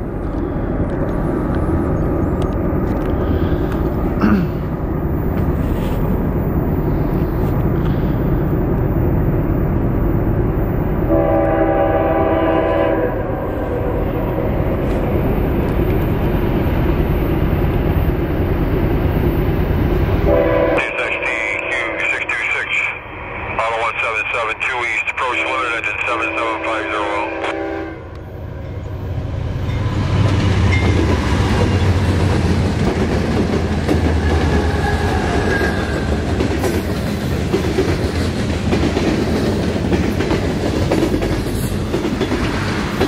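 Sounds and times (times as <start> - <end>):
freight train rumbling past: 0.0 - 43.0
locomotive horn: 11.1 - 14.0, 20.3 - 22.2, 25.4 - 28.2.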